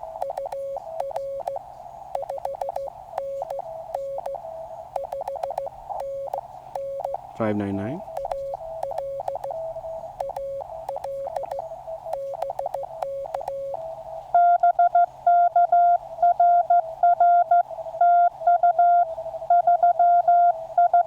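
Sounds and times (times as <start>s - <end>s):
loud morse code tone: 0.0s - 1.6s, 2.2s - 4.4s, 5.0s - 13.8s
soft low morse code tone: 0.0s - 21.0s.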